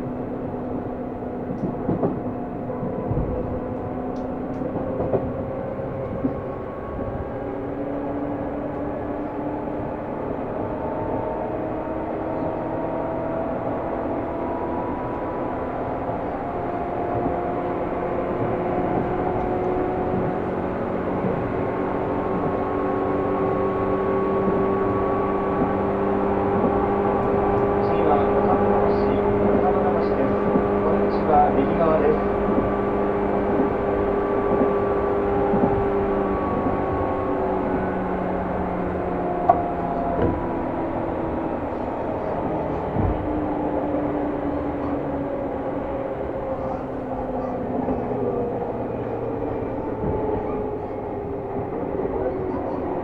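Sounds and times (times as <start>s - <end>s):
wheel-on-rail rumble: 0.0s - 53.0s
electric train motors whining: 11.4s - 53.0s.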